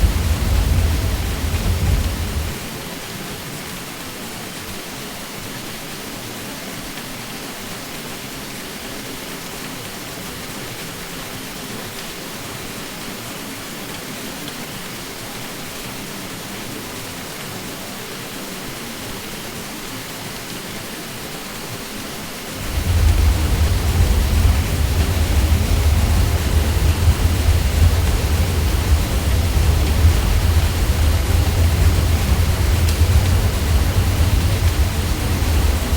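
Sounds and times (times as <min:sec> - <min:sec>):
ceiling fan drone: 0:00.0 - 0:02.9, 0:22.5 - 0:35.9.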